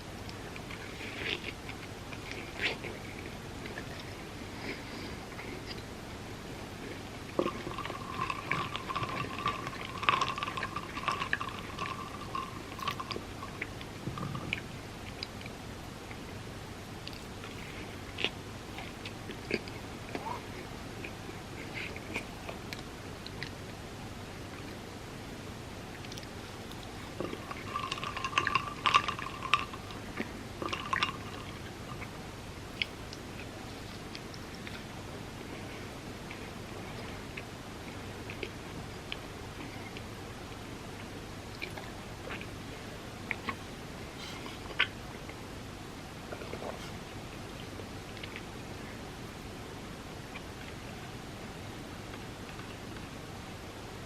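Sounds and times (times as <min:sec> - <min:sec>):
chewing with crackles: 0:00.0 - 0:16.4, 0:17.0 - 0:24.9, 0:25.9 - 0:49.4, 0:50.0 - 0:51.2, 0:52.0 - 0:53.2
wet chewing mouth sounds: 0:41.0 - 0:45.5.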